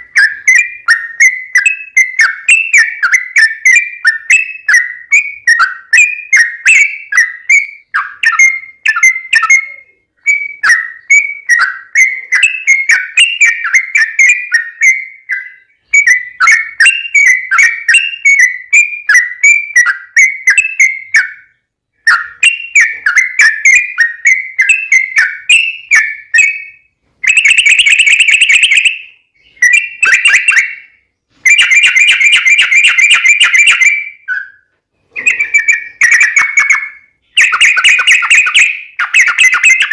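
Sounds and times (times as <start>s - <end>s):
bird singing bubbling whistled notes: 0.0s - 39.9s
bird chattering trills: 27.3s - 34.5s, 35.1s - 39.9s.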